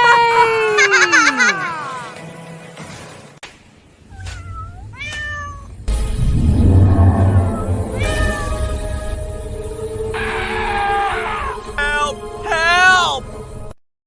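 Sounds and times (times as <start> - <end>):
background music: 0.0 - 3.5, 5.9 - 13.8
cartoon cat meowing: 4.1 - 5.7, 7.8 - 8.7
deep low rumble: 4.2 - 10.2.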